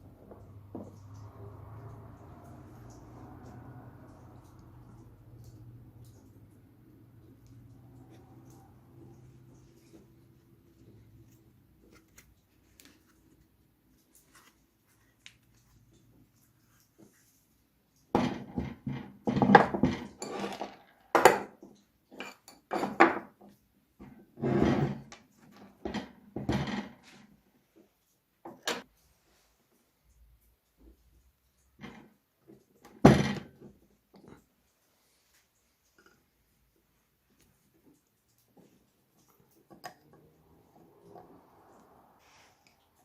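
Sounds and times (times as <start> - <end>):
metal parts clattering and scraping: 20.1 - 20.9.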